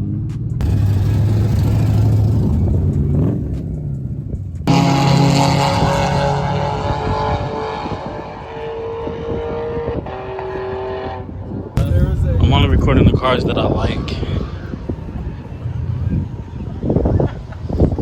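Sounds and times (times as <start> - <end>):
car engine running steadily: 0.0 - 11.2
car engine idling: 0.6 - 6.6.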